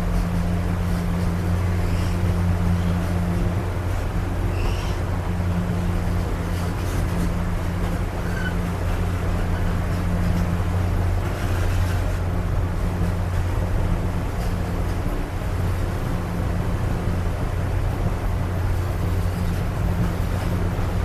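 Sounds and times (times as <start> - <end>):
train rumbling and droning: 0.0 - 21.0
faint brief squeaks: 4.5 - 5.0, 8.2 - 8.6.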